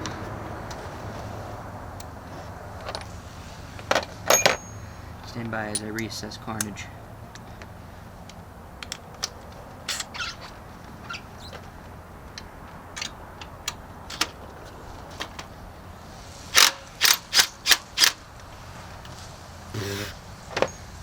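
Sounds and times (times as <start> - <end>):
tools clicking and clinking: 4.3 - 4.9, 5.7 - 7.7, 8.8 - 10.3, 13.0 - 14.4, 16.5 - 18.2
short hissing bursts: 19.7 - 20.5.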